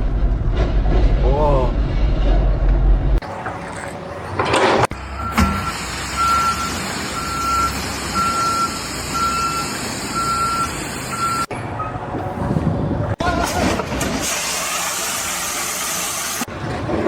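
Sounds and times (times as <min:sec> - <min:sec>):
vehicle reversing alarm beeping: 0:05.0 - 0:12.0.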